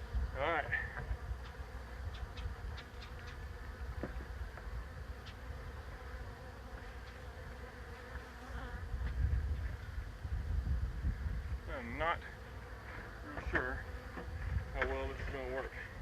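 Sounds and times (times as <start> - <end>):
swarm of bees buzzing: 0.0 - 16.0.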